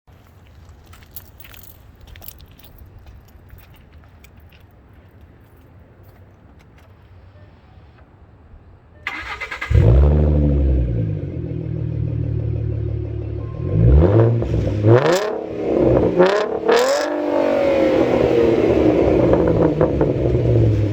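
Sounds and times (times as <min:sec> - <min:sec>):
car engine flaring and idling: 0:09.1 - 0:20.9.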